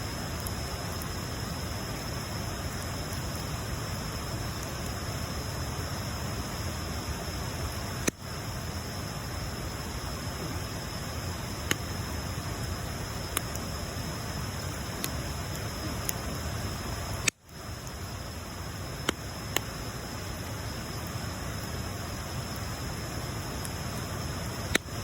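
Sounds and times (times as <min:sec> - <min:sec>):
bonfire hissing: 0:00.0 - 0:25.0
wood crackling pops: 0:08.0 - 0:08.3, 0:11.5 - 0:12.0, 0:13.2 - 0:13.7, 0:14.6 - 0:18.0, 0:19.0 - 0:19.8, 0:24.6 - 0:25.0.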